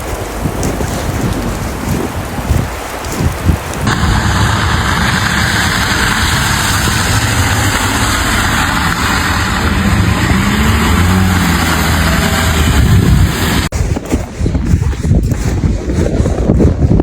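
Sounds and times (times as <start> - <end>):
loud constant rushing noise: 0.0 - 13.8
vehicle engine running: 3.9 - 13.7.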